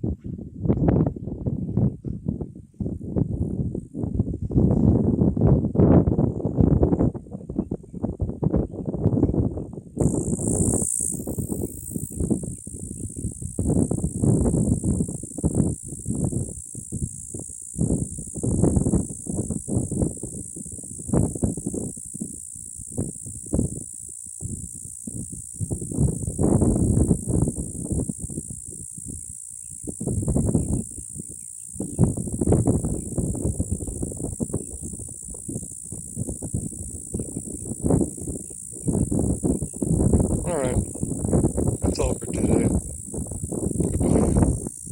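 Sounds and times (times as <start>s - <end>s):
high-pitched insect buzz: 10.0s - 44.9s.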